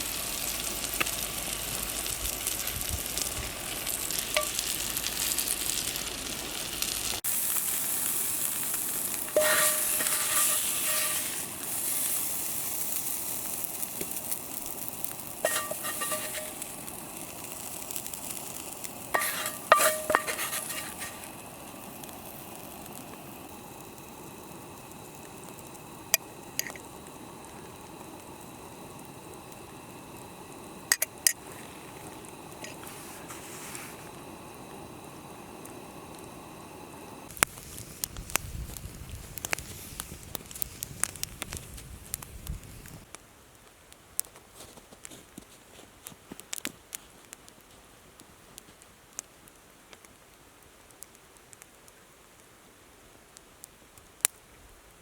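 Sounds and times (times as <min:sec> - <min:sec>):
meat sizzling in a skillet: 0:00.0 - 0:41.8
metal utensil clinking on pan: 0:04.4 - 0:04.6, 0:09.3 - 0:11.4, 0:15.4 - 0:16.7, 0:19.2 - 0:21.3.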